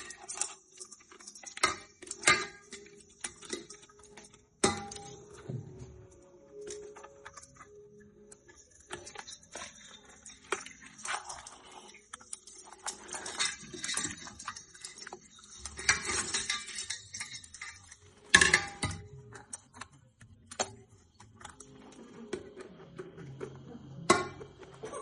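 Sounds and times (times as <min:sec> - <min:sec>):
crabs tapping against metal pot: 0:00.0 - 0:05.5, 0:13.3 - 0:19.8.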